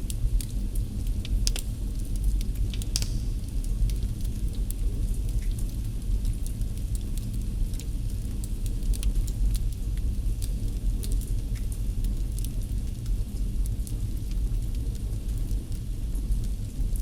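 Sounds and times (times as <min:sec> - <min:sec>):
wood fire crackling: 0:00.8 - 0:05.5.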